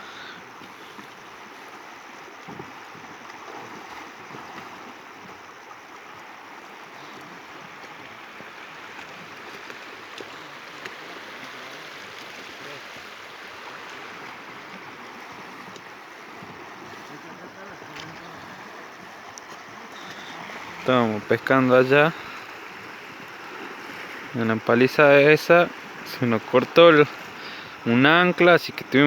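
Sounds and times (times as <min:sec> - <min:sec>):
river water rushing: 0:00.0 - 0:29.0.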